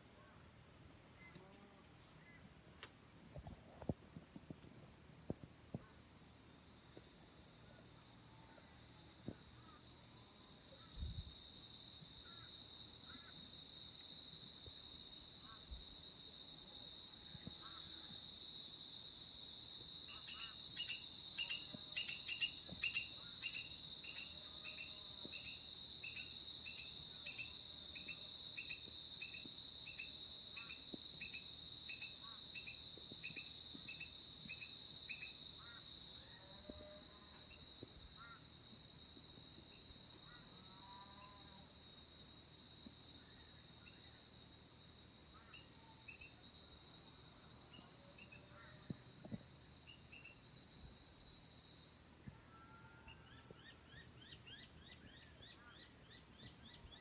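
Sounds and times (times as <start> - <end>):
insects trilling: 6.9 - 57.0.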